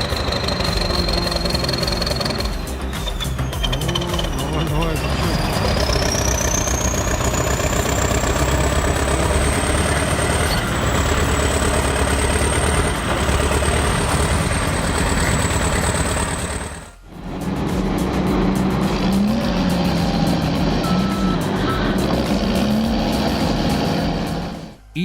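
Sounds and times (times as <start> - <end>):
heavy diesel engines under load: 0.0 - 25.0
high whine: 12.9 - 25.0.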